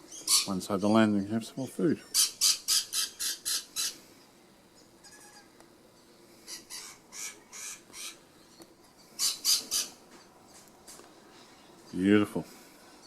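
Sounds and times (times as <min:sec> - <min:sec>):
bird squawking harshly: 0:00.3 - 0:00.6, 0:02.1 - 0:04.0, 0:06.5 - 0:08.2, 0:09.2 - 0:10.0.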